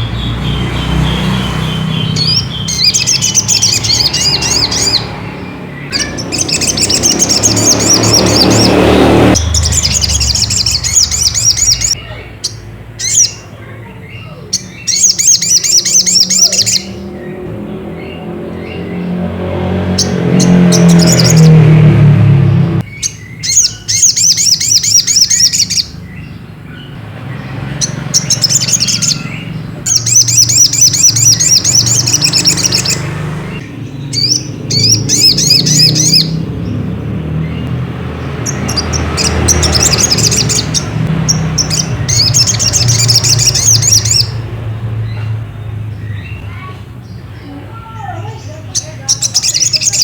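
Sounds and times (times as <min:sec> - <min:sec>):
bird twittering trills: 0:00.0 - 0:50.0.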